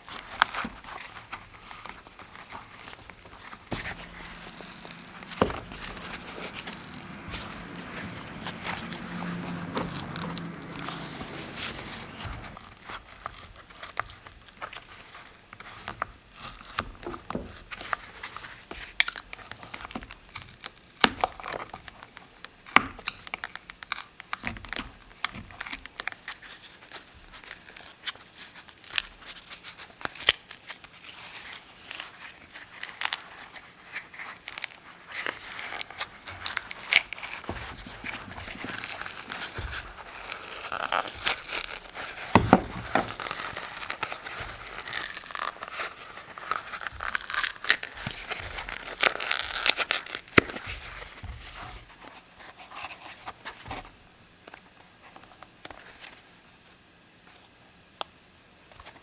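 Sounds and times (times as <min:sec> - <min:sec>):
crinkling and tearing handling: 0:00.0 - 0:21.8, 0:26.9 - 0:51.8
low hum: 0:03.2 - 0:12.7.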